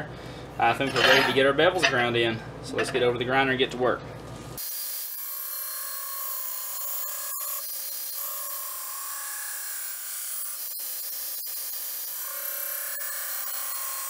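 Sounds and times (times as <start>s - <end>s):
belt grinder grinding steel: 4.6s - 14.0s.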